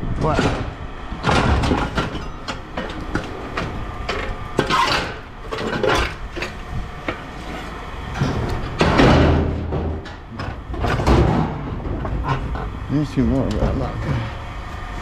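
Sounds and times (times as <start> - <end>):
scrap metal knocking and clanking: 0.2 - 12.8
metal scraping: 1.4 - 12.8.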